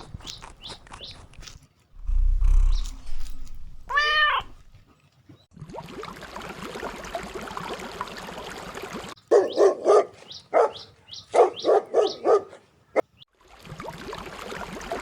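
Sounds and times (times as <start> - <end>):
dog barking: 9.3 - 13.1.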